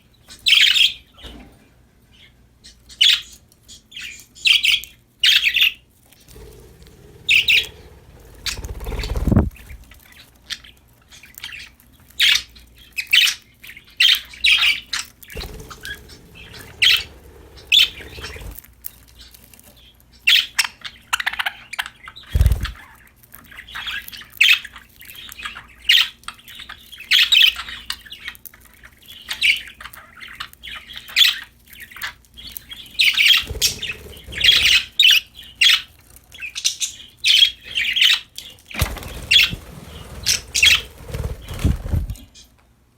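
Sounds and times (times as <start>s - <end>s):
budgerigars chirping and squawking: 0.3s - 1.4s, 2.1s - 18.6s, 19.2s - 42.2s
low thumps and rumbles: 6.3s - 9.9s, 15.4s - 18.6s.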